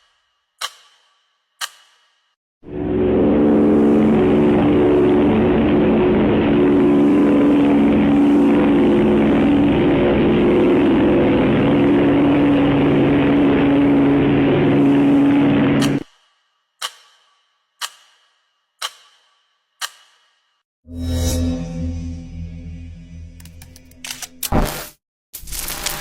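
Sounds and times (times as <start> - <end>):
propeller airplane engine drone: 2.6 - 16.0.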